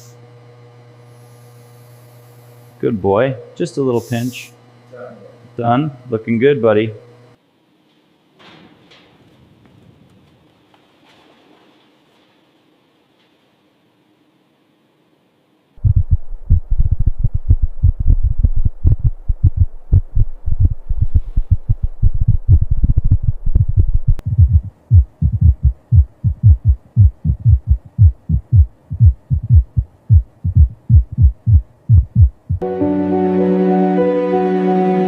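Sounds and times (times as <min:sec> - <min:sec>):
rapid heartbeat thumps: 0:15.8 - 0:32.6.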